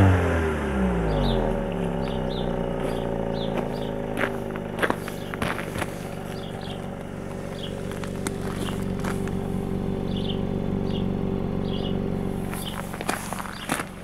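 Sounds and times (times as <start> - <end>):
car engine idling: 0.0 - 14.0
bird chirps: 1.1 - 4.1, 6.0 - 7.9, 10.0 - 13.8.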